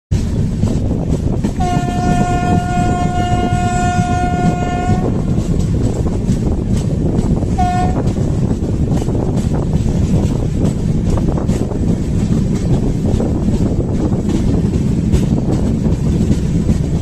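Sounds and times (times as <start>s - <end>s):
train rumble and rail clatter: 0.1s - 17.0s
train horn blasts: 1.6s - 5.6s, 7.5s - 8.2s.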